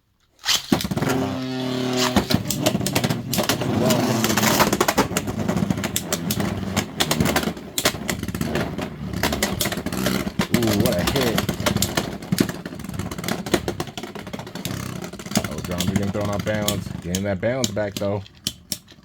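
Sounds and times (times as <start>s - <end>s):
spinning tops grinding: 0.4s - 19.0s
spinning top whirring whine: 0.9s - 14.0s.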